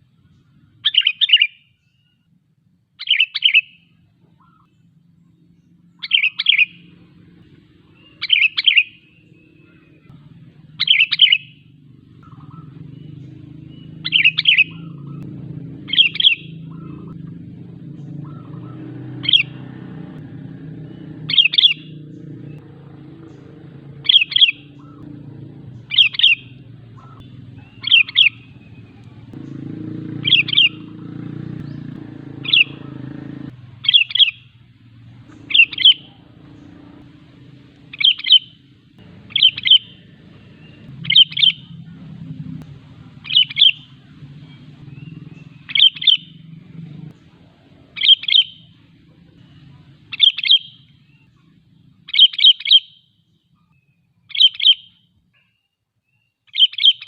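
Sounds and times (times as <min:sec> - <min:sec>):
bird chirpy calls: 0:00.0 - 0:02.3, 0:03.0 - 0:57.0
steady low hum: 0:08.9 - 0:52.1.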